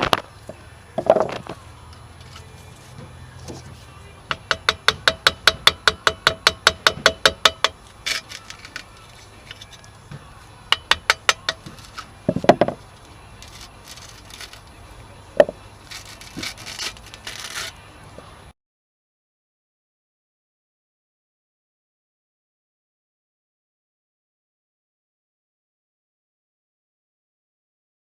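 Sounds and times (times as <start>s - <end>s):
hand scraping metal gasket: 1.0s - 9.9s, 10.7s - 14.7s, 15.4s - 17.8s.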